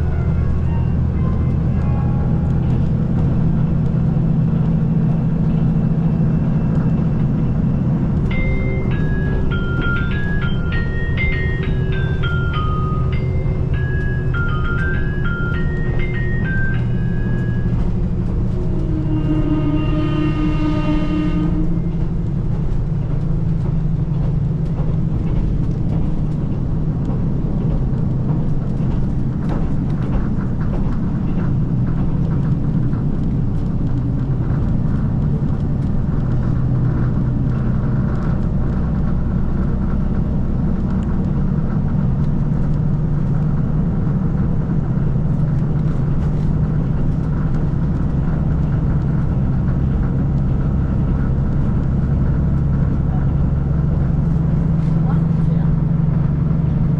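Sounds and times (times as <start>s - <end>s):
train diesel engine drone: 0.0s - 56.9s
wheel and rail rumble: 0.0s - 56.9s
pitched horn tone: 17.3s - 22.1s.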